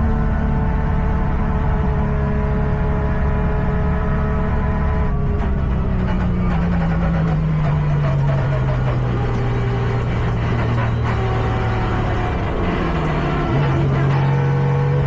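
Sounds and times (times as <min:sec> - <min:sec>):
truck engine revving: 0:03.2 - 0:15.0.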